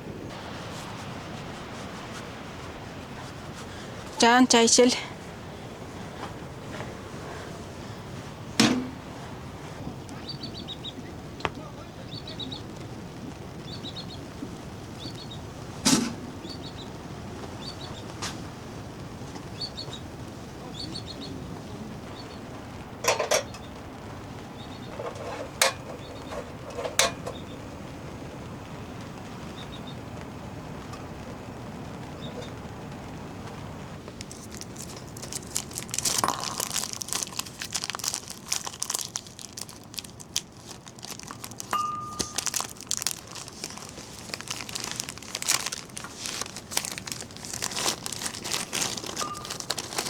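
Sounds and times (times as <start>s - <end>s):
steady hiss: 0.0s - 38.1s
small bird chirping: 10.0s - 12.8s, 13.5s - 15.5s, 16.3s - 18.1s, 19.4s - 22.5s, 23.4s - 23.8s, 24.4s - 27.8s, 29.4s - 30.0s
cups or pots clinking: 35.8s - 39.0s, 41.0s - 43.4s, 47.6s - 50.0s.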